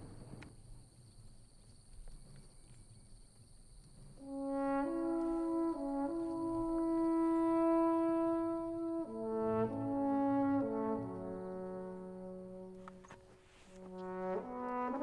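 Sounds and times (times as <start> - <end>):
slow brass melody: 4.2 - 15.0.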